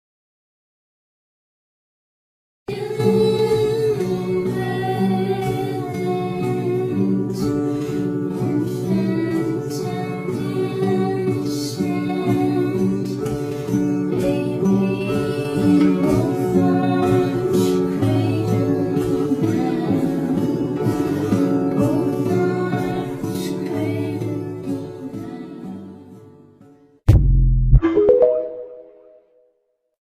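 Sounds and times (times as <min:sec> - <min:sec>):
person singing: 0:02.7 - 0:13.4, 0:14.1 - 0:26.1
plucked guitar: 0:02.7 - 0:26.4, 0:27.1 - 0:29.2.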